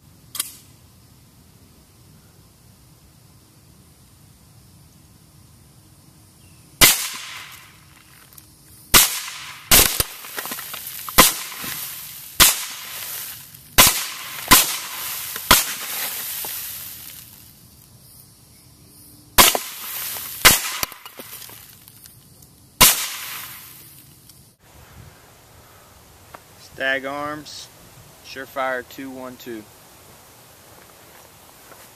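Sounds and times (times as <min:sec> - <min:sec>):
suppressed rifle shots: 0:06.8 - 0:07.6, 0:08.9 - 0:10.6, 0:11.2 - 0:11.8, 0:13.8 - 0:15.9, 0:19.4 - 0:21.2, 0:22.8 - 0:23.6.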